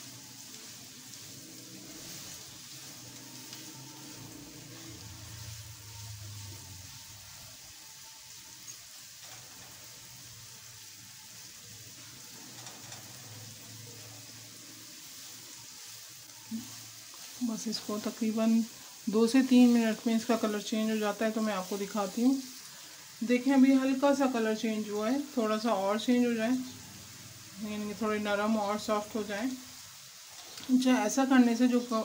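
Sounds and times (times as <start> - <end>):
vegetable slices sizzling in oil: 0.0 - 32.0.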